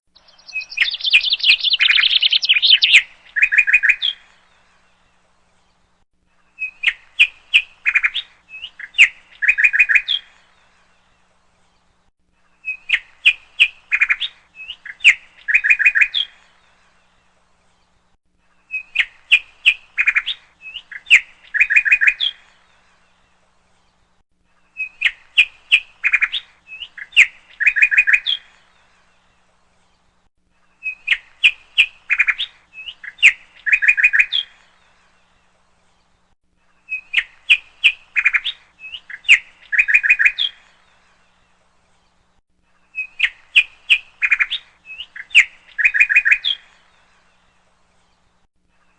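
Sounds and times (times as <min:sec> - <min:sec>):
bird chirping and trilling: 0:00.2 - 0:04.3, 0:06.6 - 0:10.4, 0:12.6 - 0:16.6, 0:18.7 - 0:22.8, 0:24.7 - 0:28.8, 0:30.8 - 0:35.0, 0:36.8 - 0:41.2, 0:42.9 - 0:47.3.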